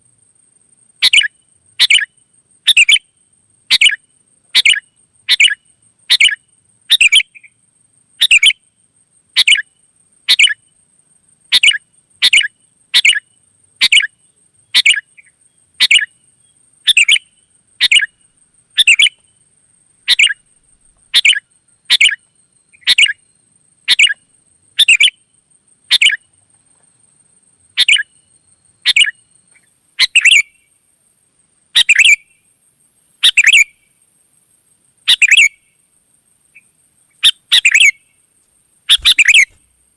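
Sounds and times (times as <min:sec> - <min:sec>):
bird chirping: 0:01.0 - 0:03.1, 0:03.7 - 0:07.6, 0:08.2 - 0:08.6, 0:09.4 - 0:10.8, 0:11.5 - 0:19.4, 0:20.0 - 0:25.2, 0:27.8 - 0:30.7, 0:31.8 - 0:32.4, 0:33.2 - 0:33.9, 0:35.1 - 0:35.8, 0:36.5 - 0:38.2, 0:38.9 - 0:39.7.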